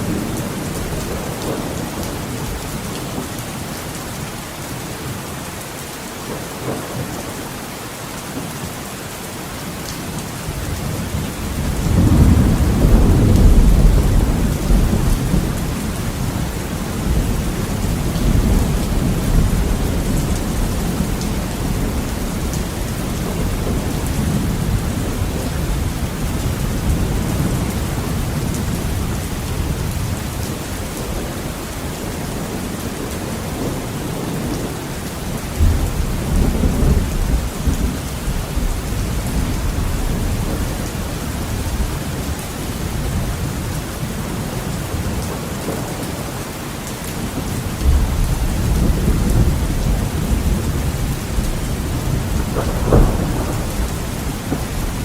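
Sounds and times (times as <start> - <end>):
heavy rain on a window: 0.0 - 55.0
rolling thunder: 10.6 - 31.4, 32.0 - 43.8, 47.3 - 55.0.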